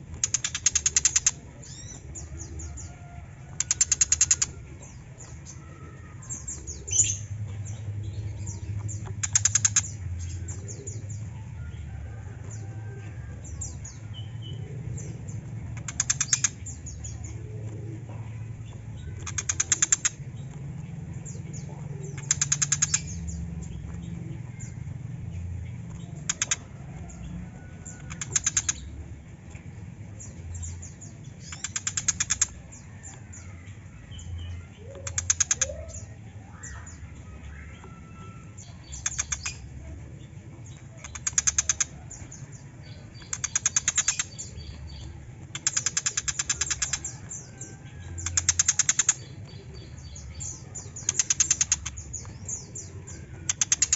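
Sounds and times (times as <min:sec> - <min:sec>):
bird rattling chatters: 0:00.0 - 0:02.0, 0:19.1 - 0:20.2, 0:22.0 - 0:23.2, 0:26.2 - 0:26.7, 0:31.4 - 0:32.6, 0:35.0 - 0:35.8, 0:41.0 - 0:42.2, 0:43.1 - 0:49.6, 0:50.4 - 0:53.9.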